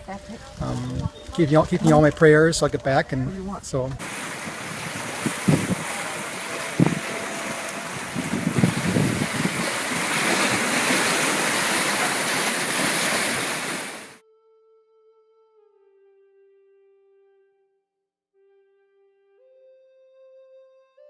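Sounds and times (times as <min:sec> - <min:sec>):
wind on microphone: 0:03.2 - 0:14.2.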